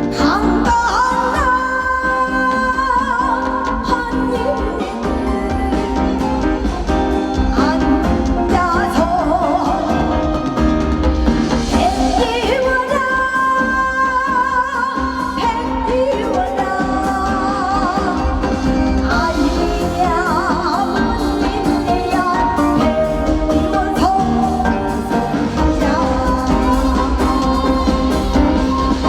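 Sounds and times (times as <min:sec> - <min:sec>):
woman singing folk song: 0:00.0 - 0:10.8, 0:11.7 - 0:29.0
musical accompaniment: 0:00.0 - 0:29.0.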